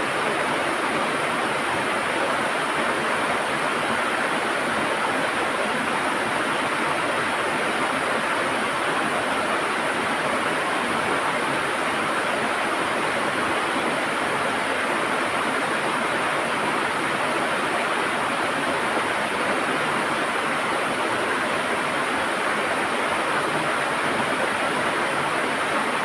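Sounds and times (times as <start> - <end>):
river water rushing and gurgling: 0.0 - 26.0.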